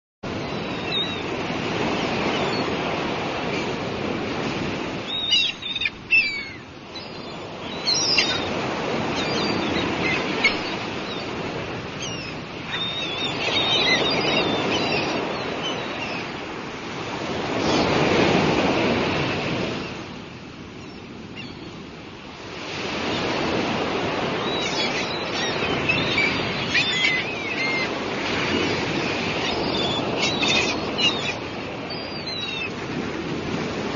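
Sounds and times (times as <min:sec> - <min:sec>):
gulls calling: 0:00.3 - 0:19.2, 0:20.8 - 0:21.9, 0:22.8 - 0:33.0
sea waves breaking on shore: 0:00.3 - 0:33.9.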